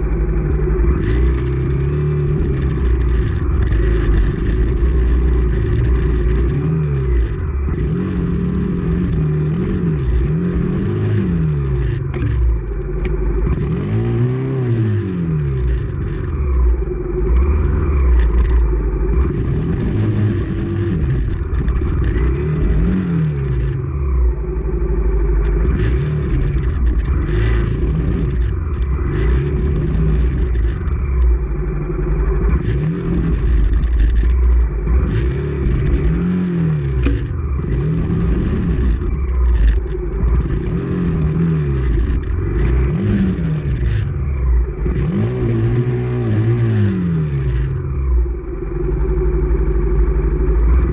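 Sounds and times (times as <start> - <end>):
dirt bike engine revving: 0.9 - 12.6, 17.4 - 23.9, 25.6 - 31.2, 32.4 - 47.9.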